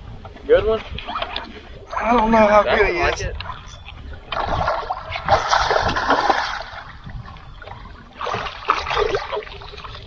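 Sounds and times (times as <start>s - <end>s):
fish splashing at water surface: 4.3s - 6.9s.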